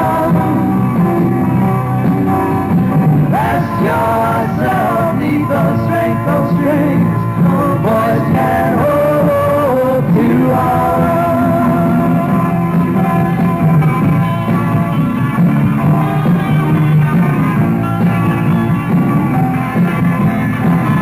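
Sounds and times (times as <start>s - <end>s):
person singing: 0.0s - 1.3s, 3.3s - 13.0s
bass guitar: 0.0s - 21.0s
electric guitar: 0.0s - 21.0s.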